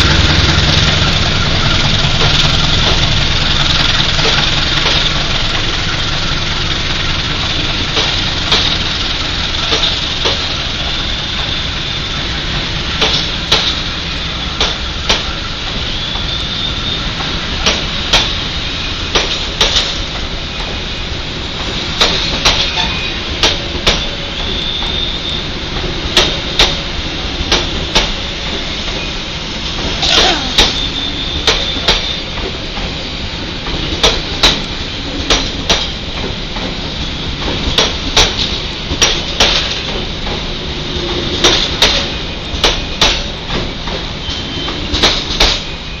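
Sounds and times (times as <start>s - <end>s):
wheels clicking over rail joint: 0.0s - 11.6s, 29.7s - 33.0s, 33.6s - 45.8s
train rumble: 0.0s - 46.0s.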